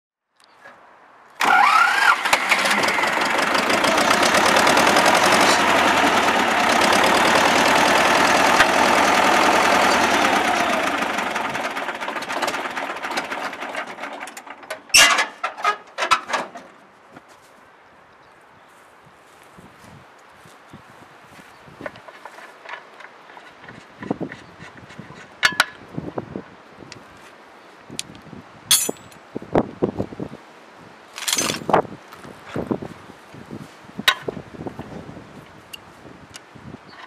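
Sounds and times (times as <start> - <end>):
tractor diesel engine running: 1.4 - 15.8.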